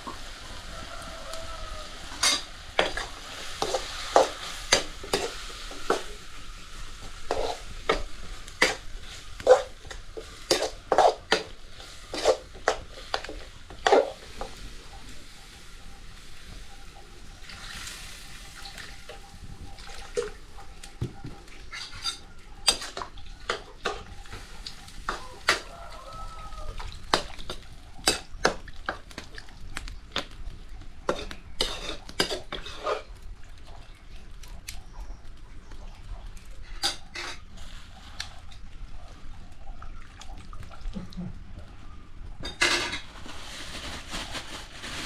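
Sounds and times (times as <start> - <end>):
pots and utensils clattering: 1.6 - 29.4, 31.0 - 33.2, 36.6 - 38.6, 42.4 - 45.0.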